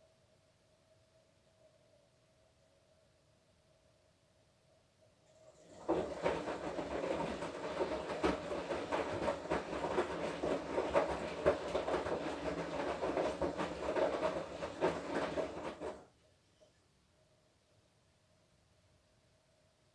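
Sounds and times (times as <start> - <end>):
washing machine hum: 5.3 - 16.2
wet clothes tumbling in drum: 5.6 - 16.0.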